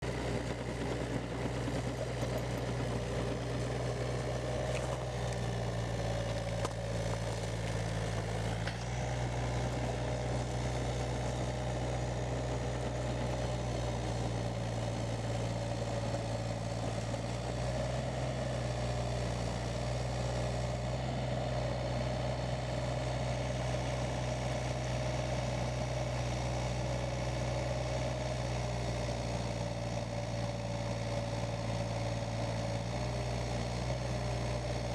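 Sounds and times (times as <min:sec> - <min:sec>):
diesel engine idling: 0:00.0 - 0:26.2.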